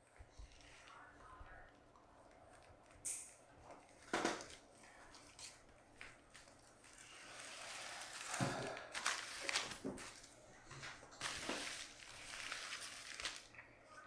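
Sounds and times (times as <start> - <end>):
plastic containers rustling: 3.7 - 14.0.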